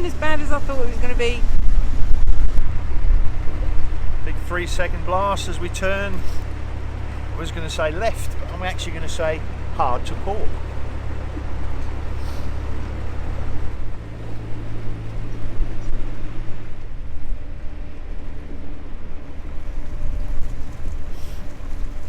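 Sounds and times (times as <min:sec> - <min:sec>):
wind on microphone: 0:00.0 - 0:05.4, 0:10.3 - 0:22.0
boat diesel engine running: 0:00.0 - 0:22.0.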